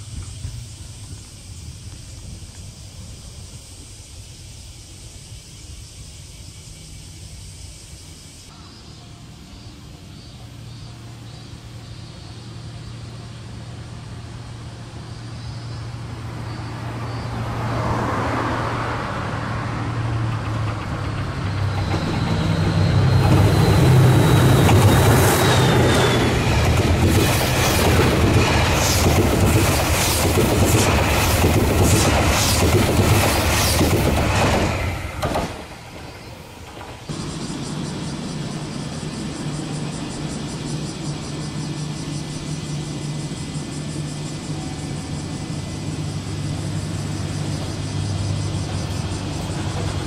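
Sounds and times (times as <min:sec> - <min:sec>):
train passing: 0:00.0 - 0:50.0
wheels clacking over rail joints: 0:19.8 - 0:37.2, 0:48.5 - 0:50.0.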